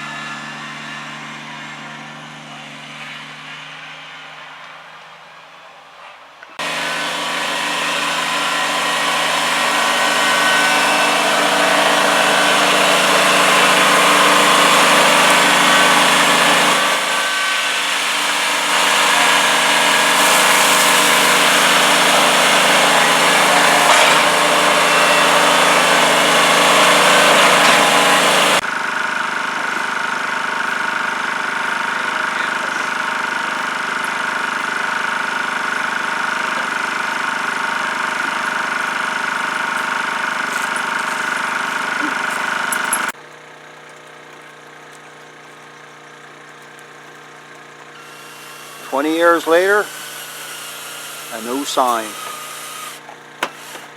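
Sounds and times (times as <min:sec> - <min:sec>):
engine running loudly: 0:00.0 - 0:05.4, 0:06.6 - 0:43.2, 0:48.0 - 0:53.1.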